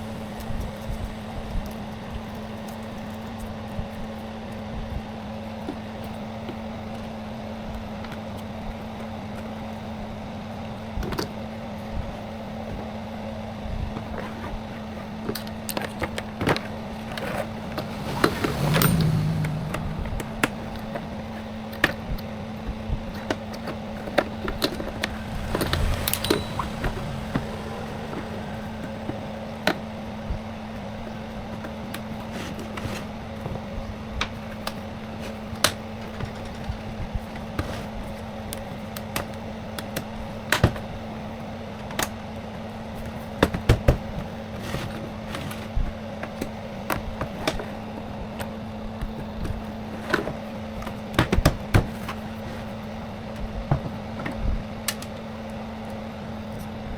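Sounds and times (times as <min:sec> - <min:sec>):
steady low hum: 0:00.0 - 0:04.2.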